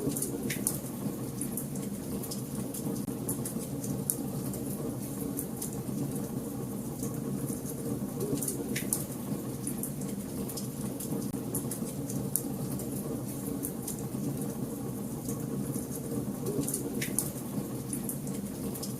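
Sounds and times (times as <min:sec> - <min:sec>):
wood fire crackling and popping: 0:00.1 - 0:06.4, 0:15.2 - 0:18.9.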